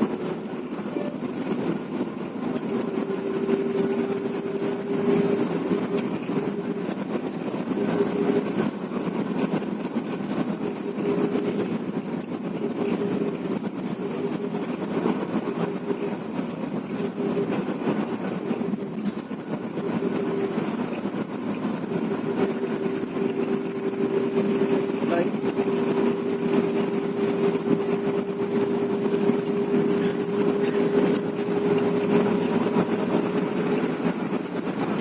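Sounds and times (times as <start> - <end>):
humming tone: 0.0 - 1.6
bus engine and road noise: 0.0 - 35.0.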